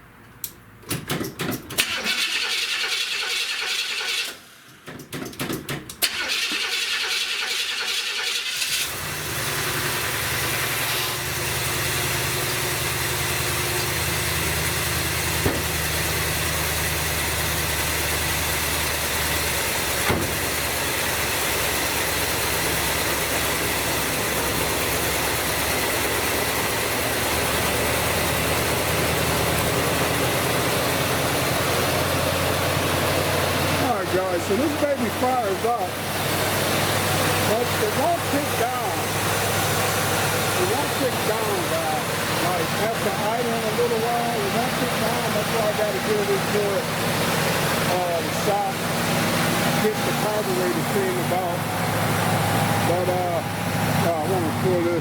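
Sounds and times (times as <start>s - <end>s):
starter motor cranking: 1.3s - 9.3s
car engine idling: 6.0s - 55.0s.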